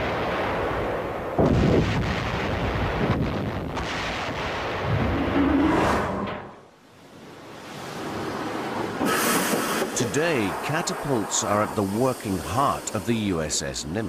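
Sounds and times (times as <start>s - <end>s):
heavy blasts with rumbling decay: 0.0s - 6.7s.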